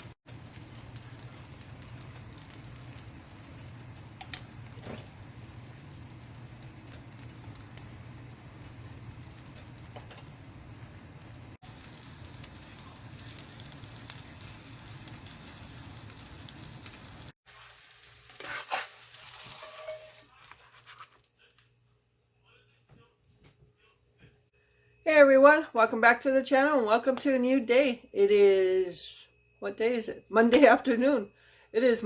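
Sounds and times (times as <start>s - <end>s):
crackly hiss: 0.0s - 17.7s.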